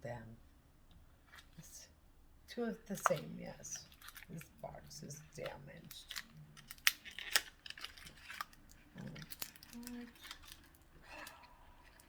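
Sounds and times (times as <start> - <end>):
packaging crinkling: 3.1 - 4.5, 5.9 - 12.0.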